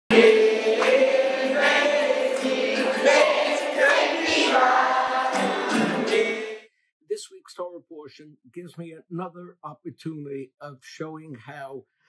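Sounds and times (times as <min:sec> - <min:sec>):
choir singing sustained notes: 0:00.1 - 0:06.6.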